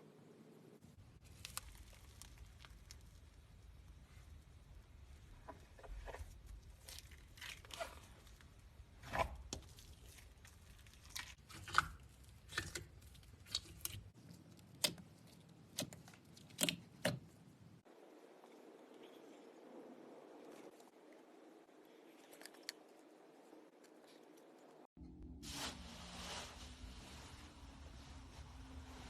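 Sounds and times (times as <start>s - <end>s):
slime popping and crackling: 1.2s - 3.5s.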